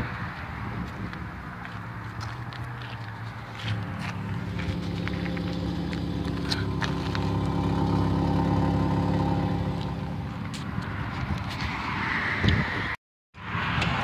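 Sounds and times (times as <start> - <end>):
car engine idling: 3.4 - 11.0.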